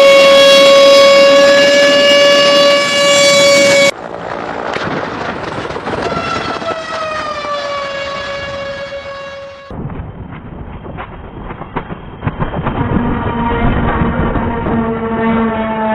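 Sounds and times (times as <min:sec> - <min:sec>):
loud horn-like tone: 0:00.0 - 0:03.9, 0:06.1 - 0:09.8, 0:12.8 - 0:15.9.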